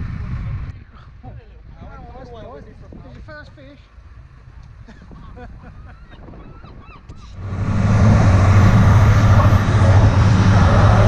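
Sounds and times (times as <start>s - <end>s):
wind and wake spray: 2.6s - 11.0s
gulls calling: 5.7s - 11.0s
boat engine drone: 7.3s - 11.0s.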